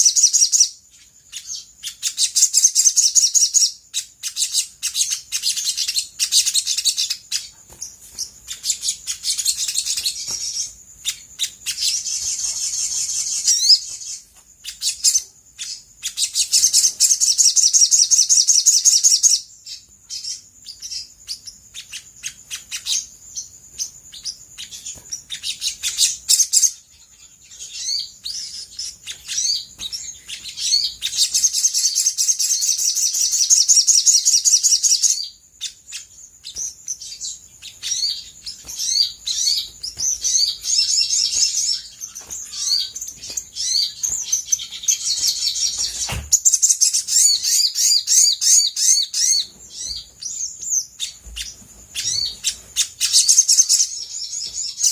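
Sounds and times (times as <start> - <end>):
sharp bird chirps: 0.0 - 54.9
whistled bird notes: 0.0 - 54.9
bird singing trilled runs: 36.4 - 54.9.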